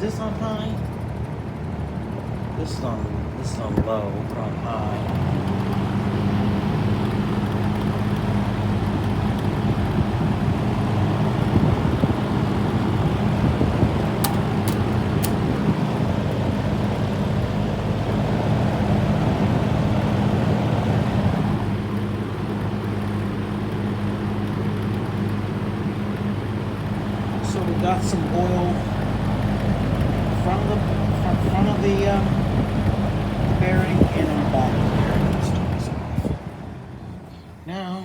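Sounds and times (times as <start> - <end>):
box fan running: 0.0 - 38.0
sharp clicks: 14.2 - 15.6.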